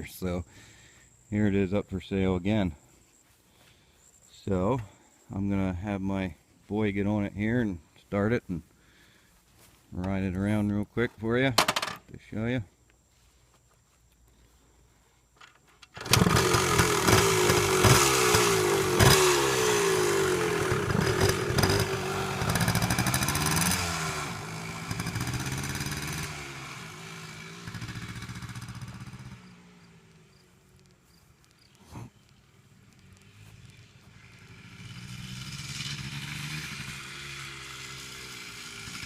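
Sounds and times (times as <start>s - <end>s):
dirt bike engine revving: 16.0s - 39.0s.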